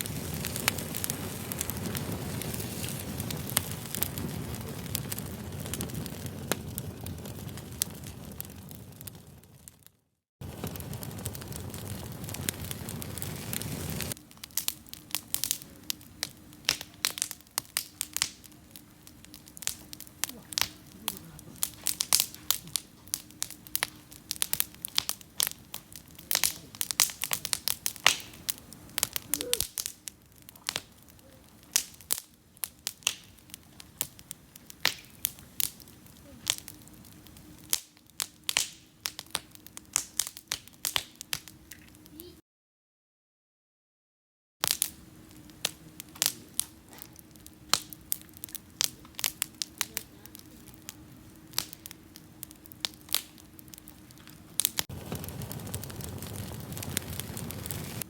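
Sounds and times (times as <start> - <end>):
campfire crackling and popping: 0.0 - 42.3, 44.6 - 58.0.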